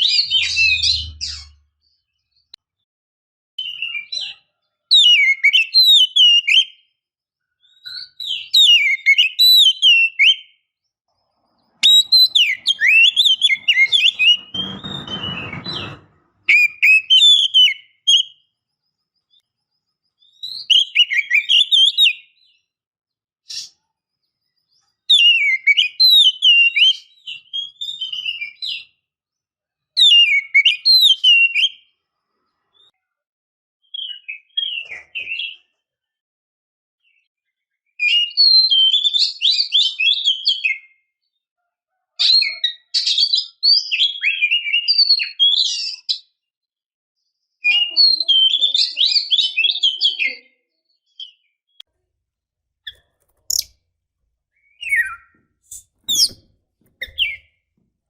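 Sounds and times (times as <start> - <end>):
brief rustling: 11.8 - 16.7, 54.8 - 57.4
bird whistled sliding phrases: 11.8 - 17.7, 52.9 - 53.7, 54.6 - 56.4, 57.0 - 57.5.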